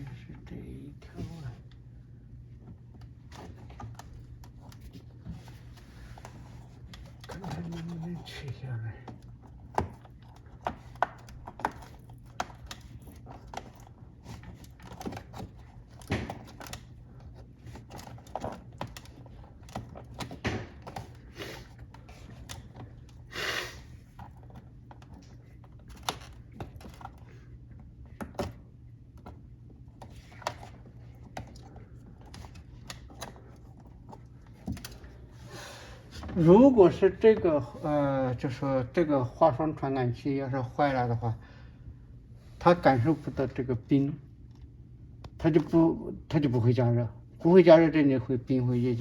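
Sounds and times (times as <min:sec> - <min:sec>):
steady low hum: 0:00.0 - 0:49.0
clicks and knocks of parts: 0:09.0 - 0:23.2.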